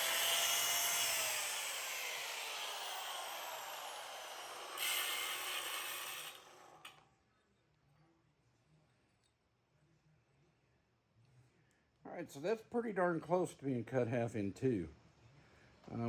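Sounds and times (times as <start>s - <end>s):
angle grinder cutting metal: 0.0s - 7.0s.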